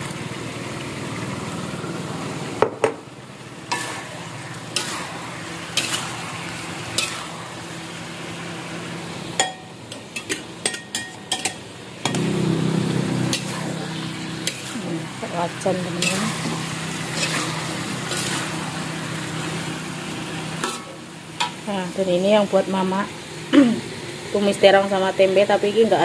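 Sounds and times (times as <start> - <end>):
eggplant sizzling in a wok: 0.0 - 26.0
metal spatula clacking on pan: 9.4 - 12.2
spatula clinking on ceramic bowl: 9.4 - 12.2.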